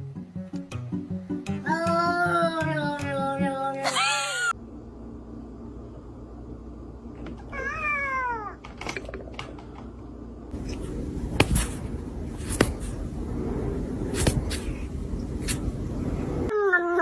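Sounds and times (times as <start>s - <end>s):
cat meowing: 3.8s - 4.5s.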